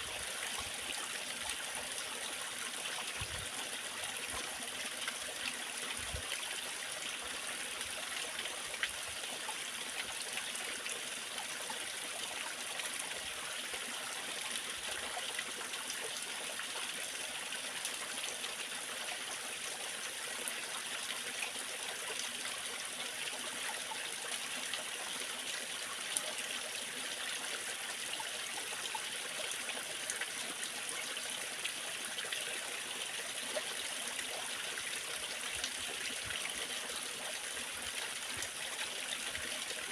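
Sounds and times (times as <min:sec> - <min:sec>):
waterfall and stream water: 0:00.0 - 0:39.9.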